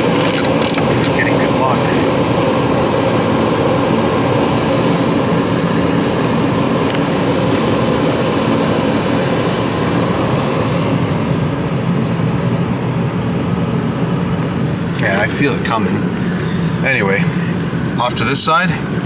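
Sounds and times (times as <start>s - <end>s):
car blower rushing air through vents: 0.0s - 19.0s
constant low hum: 0.0s - 19.0s.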